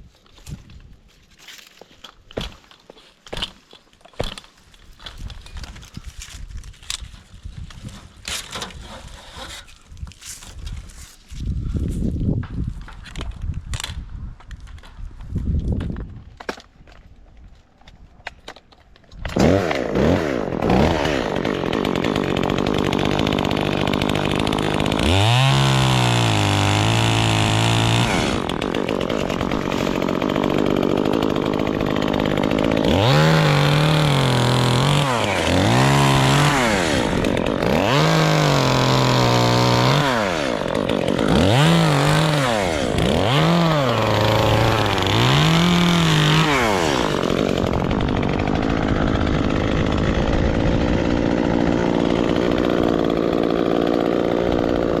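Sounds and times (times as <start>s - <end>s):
chainsaw revving and idling: 19.2s - 55.0s.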